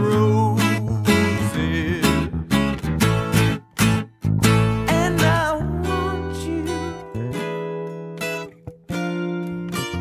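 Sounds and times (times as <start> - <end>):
bass line: 0.0 - 7.8
acoustic guitar strumming: 0.0 - 10.0.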